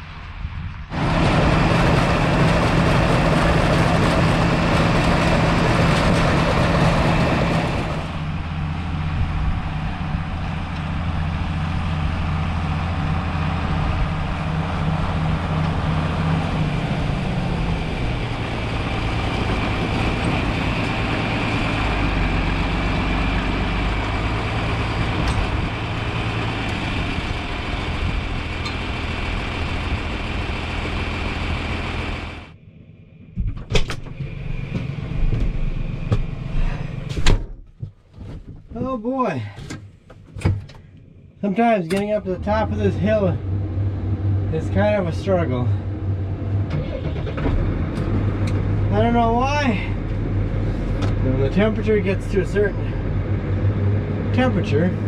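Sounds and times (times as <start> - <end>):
loud rushing noise: 0.0 - 10.4
tractor engine running: 0.0 - 55.0.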